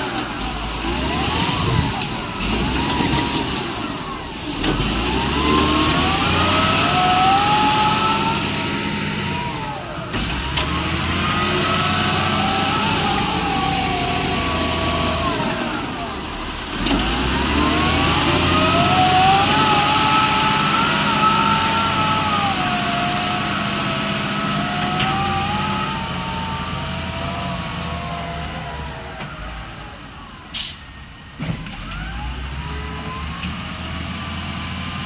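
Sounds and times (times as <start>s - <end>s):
hydraulic whine: 0.0s - 33.6s
excavator diesel engine: 0.0s - 35.0s.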